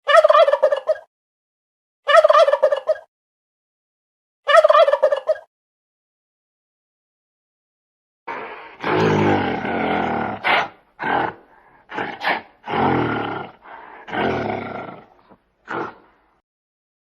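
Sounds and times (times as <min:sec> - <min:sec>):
large animal low calls: 0:08.4 - 0:16.0.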